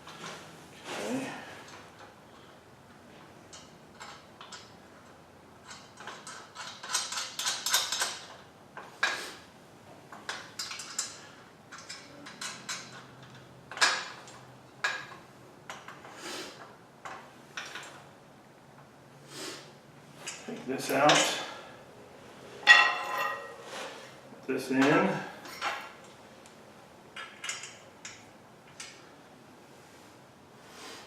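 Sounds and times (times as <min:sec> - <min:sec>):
metal parts clinking and knocking: 0:05.6 - 0:08.4, 0:10.1 - 0:16.0, 0:22.6 - 0:23.6, 0:27.2 - 0:29.0.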